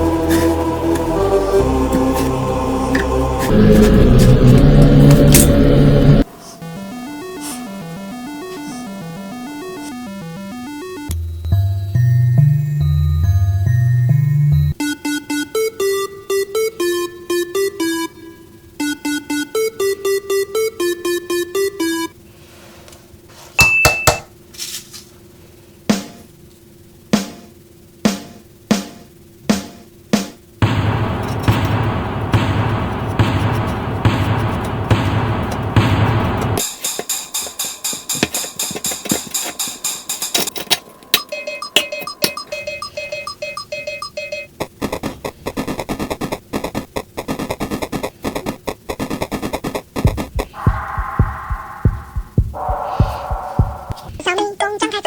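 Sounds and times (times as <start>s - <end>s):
electronic beeping tone: 6.5s - 13.0s, 41.2s - 44.6s, 50.4s - 54.2s
drum hits: 28.1s - 39.6s, 50.0s - 54.2s
dense noisy sound: 44.5s - 54.2s
faint held tone: 50.6s - 54.2s.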